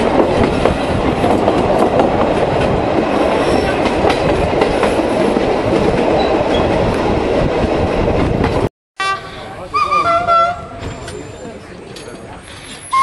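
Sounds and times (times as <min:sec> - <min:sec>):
train wheels rumbling on rails: 0:00.0 - 0:08.7, 0:09.4 - 0:13.0.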